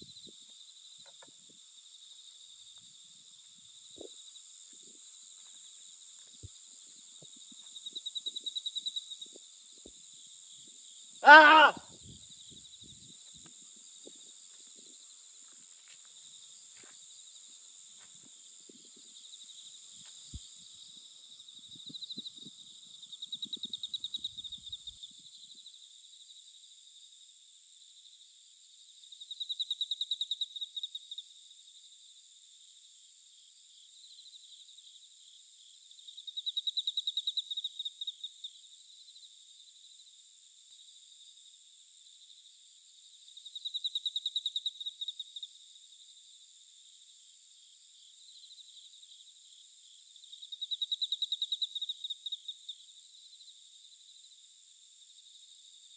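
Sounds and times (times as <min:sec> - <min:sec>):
insects chirping: 0:00.0 - 0:26.6, 0:42.2 - 0:55.9.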